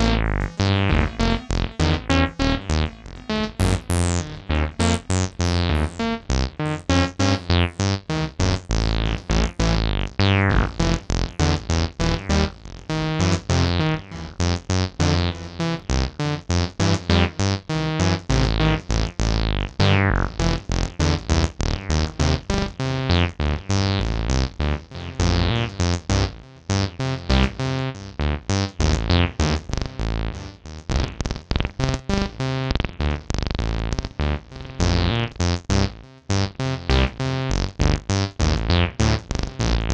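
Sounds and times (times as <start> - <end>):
squelchy acid synth notes: 0.0 - 16.3
deep synth bass: 0.0 - 39.9.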